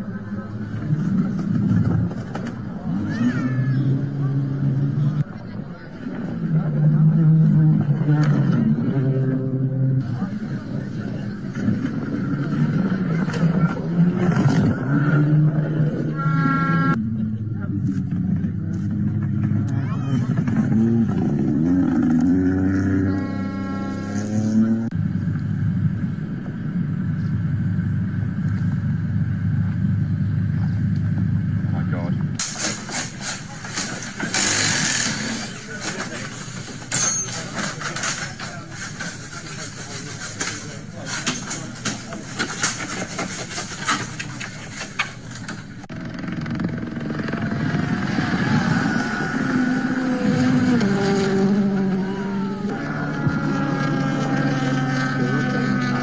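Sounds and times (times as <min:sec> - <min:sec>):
rally car engine revving: 0:00.0 - 0:56.0
steady low rumble: 0:24.7 - 0:32.4
sharp clicks and clatter: 0:32.2 - 0:47.9.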